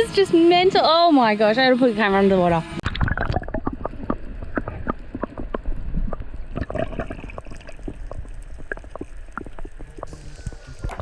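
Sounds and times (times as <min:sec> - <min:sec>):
water sloshing and gurgling: 0:02.8 - 0:11.0.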